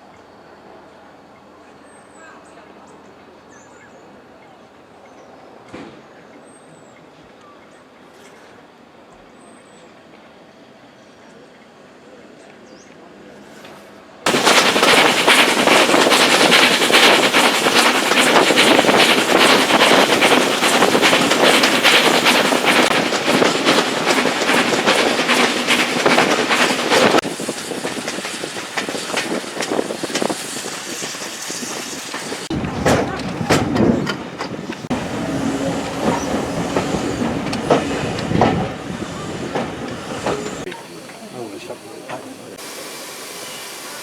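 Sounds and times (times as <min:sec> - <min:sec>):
train wheels clattering over rails: 0:14.3 - 0:44.0.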